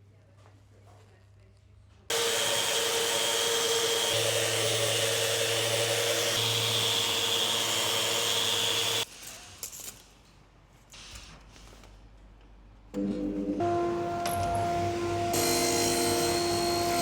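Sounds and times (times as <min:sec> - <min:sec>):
power tool hissing whine: 0:02.1 - 0:09.0, 0:13.6 - 0:17.0.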